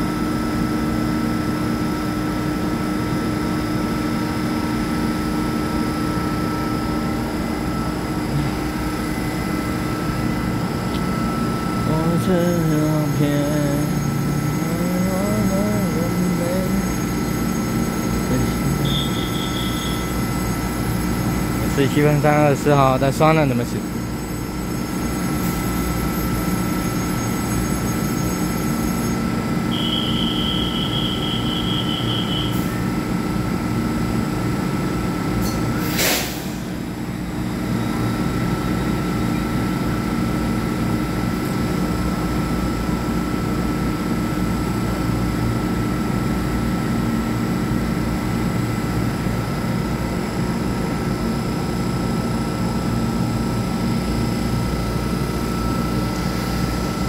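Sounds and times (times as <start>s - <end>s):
faint high whine: 0.1s - 33.0s
train equipment humming: 2.4s - 40.0s
brief sharp noise: 35.8s - 36.6s.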